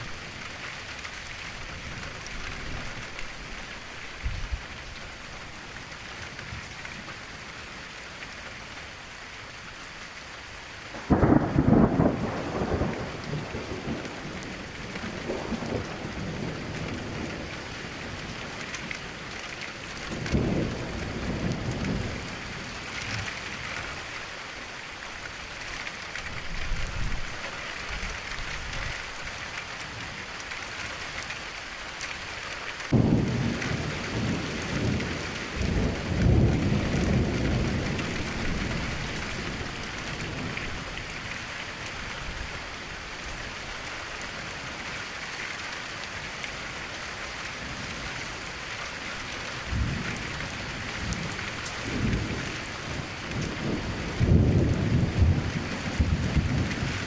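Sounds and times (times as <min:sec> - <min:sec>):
rain falling: 0:00.0 - 0:57.0
thunder rumbling: 0:10.9 - 0:19.1, 0:19.9 - 0:24.0, 0:32.9 - 0:42.5, 0:49.6 - 0:57.0.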